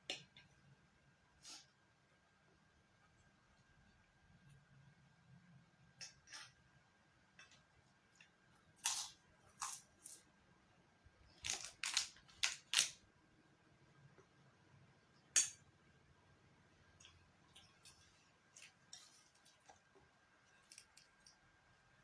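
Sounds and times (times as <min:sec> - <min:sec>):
crisp eating crunches: 0:11.4 - 0:13.0.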